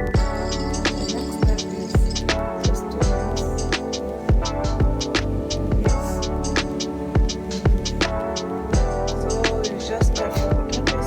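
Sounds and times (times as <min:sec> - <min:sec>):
sustained synth chords: 0:00.0 - 0:11.0
kick drum beat: 0:00.1 - 0:00.6, 0:01.4 - 0:03.3, 0:04.3 - 0:05.1, 0:05.7 - 0:06.2, 0:07.2 - 0:08.0, 0:08.8 - 0:09.1, 0:10.0 - 0:10.8.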